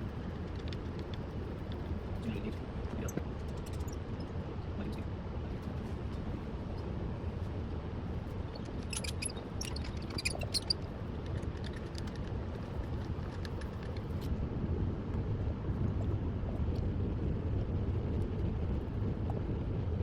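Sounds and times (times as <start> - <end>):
low machinery rumble: 0.0 - 20.0
light clicks and clinks: 8.5 - 14.3.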